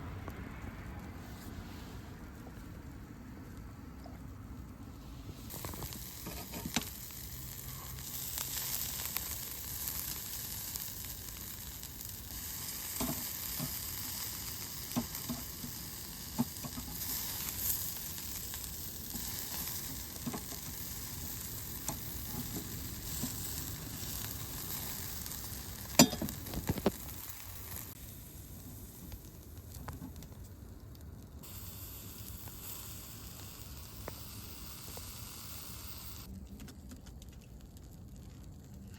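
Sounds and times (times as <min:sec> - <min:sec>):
food sizzling in pan: 0:05.5 - 0:30.0, 0:31.4 - 0:36.3
small pops: 0:29.1 - 0:35.6.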